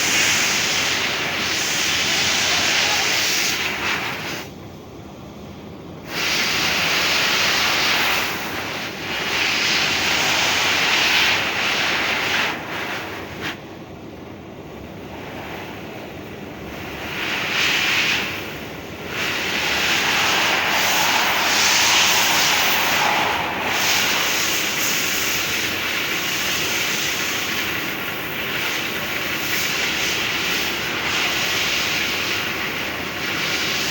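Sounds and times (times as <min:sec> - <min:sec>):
industrial vacuum cleaner suction: 0:17.3 - 0:27.3.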